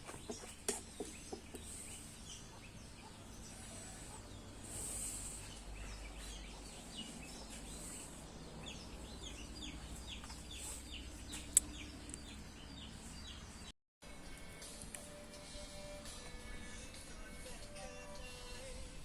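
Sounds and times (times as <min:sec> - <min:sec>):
birds chirping: 0:00.0 - 0:13.7.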